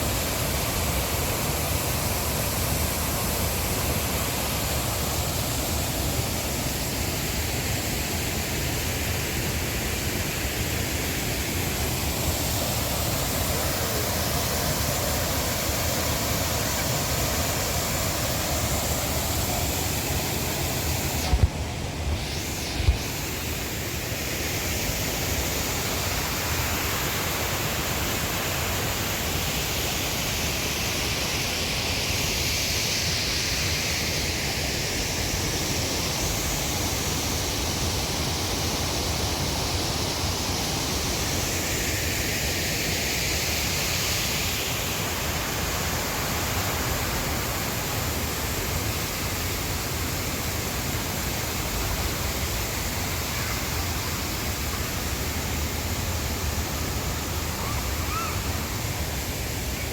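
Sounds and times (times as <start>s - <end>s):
waterfall and river rushing over rocks: 0.0s - 59.9s.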